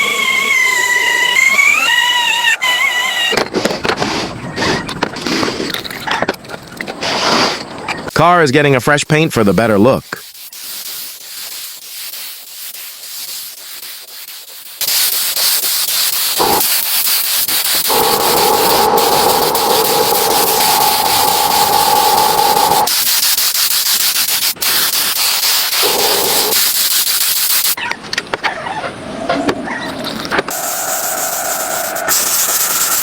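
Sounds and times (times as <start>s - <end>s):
power sander sanding: 17.4s - 22.9s.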